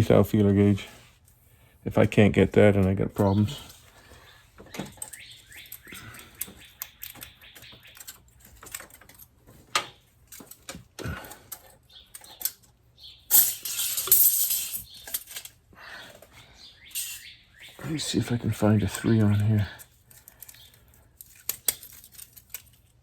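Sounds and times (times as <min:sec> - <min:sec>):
metal blades clicking and jangling: 0:13.3 - 0:15.6
scraping rustle: 0:13.3 - 0:15.6.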